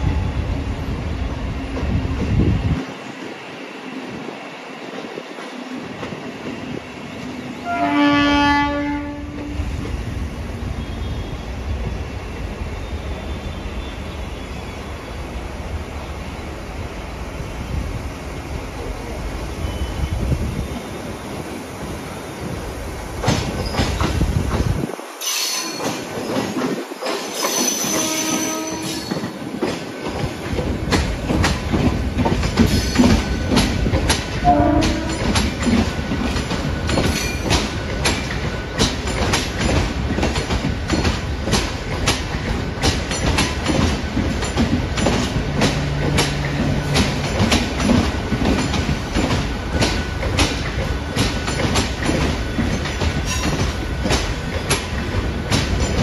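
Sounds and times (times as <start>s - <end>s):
train horn: 7.6s - 9.6s, 27.8s - 29.1s, 34.4s - 35.3s
train wheels clicking over rail joints: 22.4s - 56.0s.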